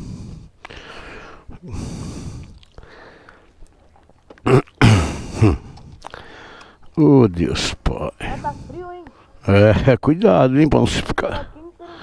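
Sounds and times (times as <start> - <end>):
man breathing out noisily: 0.0 - 3.5, 5.1 - 6.8.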